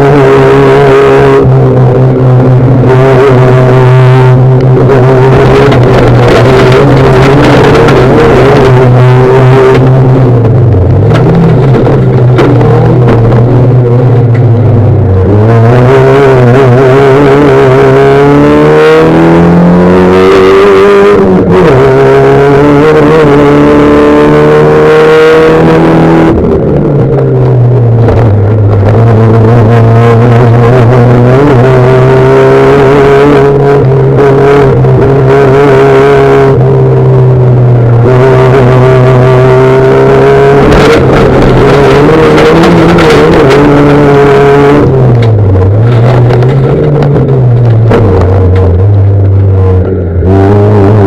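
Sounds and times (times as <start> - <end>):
rally car engine revving: 0.0 - 51.0.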